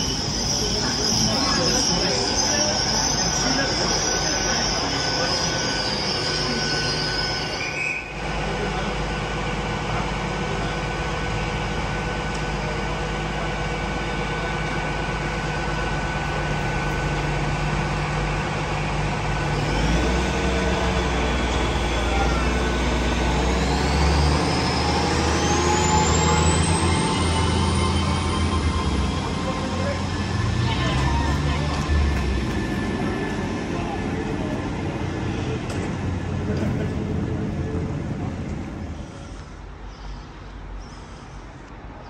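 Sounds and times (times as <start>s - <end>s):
train wheel squeal: 0.0s - 8.2s, 19.4s - 34.0s
train motor rumble and whine: 0.0s - 41.9s
train humming at platform: 0.0s - 42.0s.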